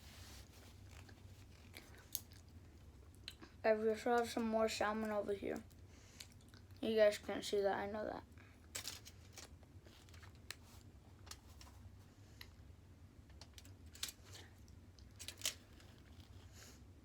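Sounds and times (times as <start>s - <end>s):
low room hum: 0.0s - 17.0s
eating clicks and crinkling: 0.8s - 3.5s, 5.0s - 6.8s.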